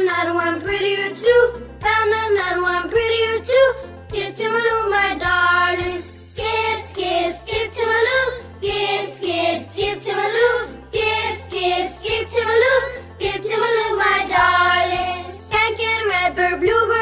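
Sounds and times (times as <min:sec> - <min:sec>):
person singing children's song: 0:00.0 - 0:17.0
synthesized accompaniment: 0:04.7 - 0:16.3.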